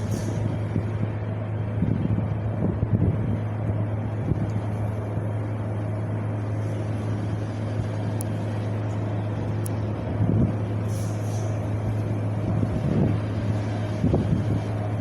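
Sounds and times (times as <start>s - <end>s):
wind gust buffeting microphone: 0.0s - 5.3s, 11.5s - 15.0s
low rumble: 0.0s - 15.0s
wind blowing: 0.0s - 15.0s.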